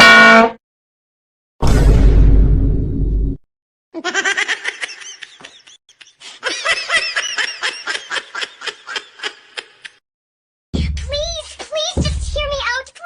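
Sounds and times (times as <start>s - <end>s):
deep booming hit: 1.6s - 3.4s
high-pitched laughter: 4.0s - 10.0s.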